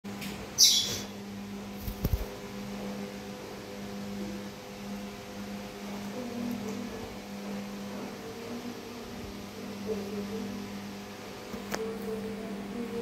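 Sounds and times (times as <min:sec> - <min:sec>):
low mechanical hum: 0:00.1 - 0:13.0.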